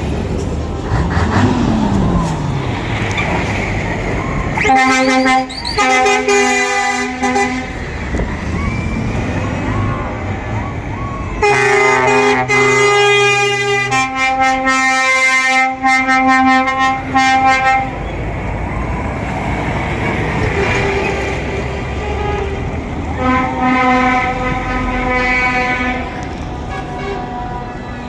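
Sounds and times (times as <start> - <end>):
vehicle rumble: 0.0 - 28.0
truck horns blowing: 3.2 - 8.2, 11.0 - 18.1, 20.0 - 28.0.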